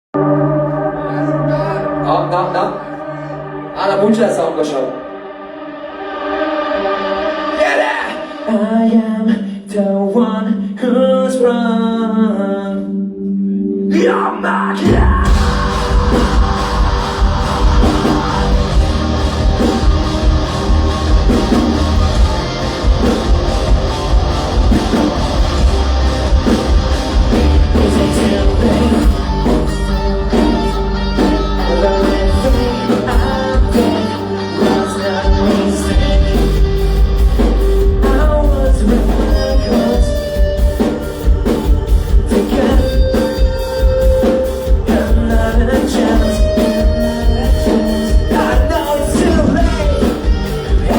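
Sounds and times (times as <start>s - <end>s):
person singing: 0.2s - 50.9s
rock band playing live: 14.8s - 50.9s.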